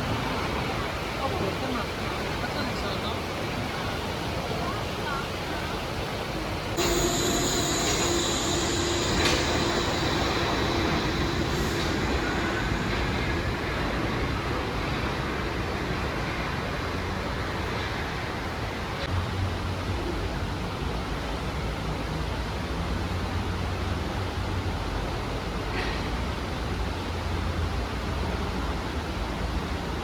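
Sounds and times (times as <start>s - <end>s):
suspension railway car rushing: 0.0s - 19.1s
multi-tone whine: 6.8s - 18.0s.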